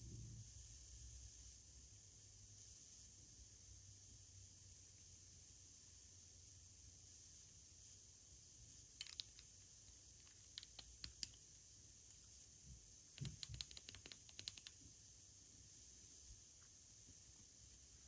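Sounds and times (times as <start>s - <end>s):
faint steady hiss: 0.0s - 18.0s
packaging clicks and crackles: 9.0s - 9.5s.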